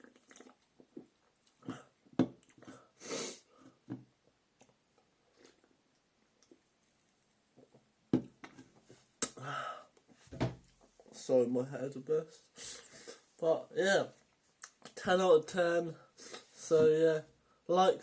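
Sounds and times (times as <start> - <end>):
breathing through mouth and nose: 2.6 - 3.8, 12.6 - 13.4, 16.1 - 16.6.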